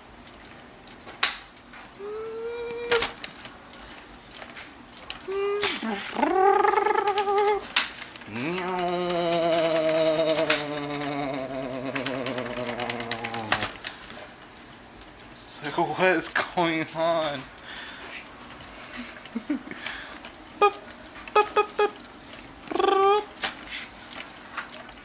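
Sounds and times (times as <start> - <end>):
man humming low: 2.0 - 3.2, 5.2 - 13.9, 20.6 - 22.0, 22.6 - 23.4
baby cooing and squeaking: 5.3 - 7.7.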